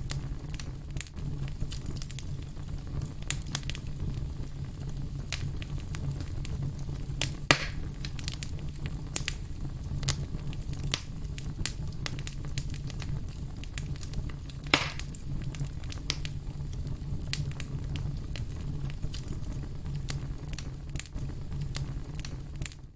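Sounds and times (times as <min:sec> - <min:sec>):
firewood burning and crackling: 0:00.0 - 0:22.9.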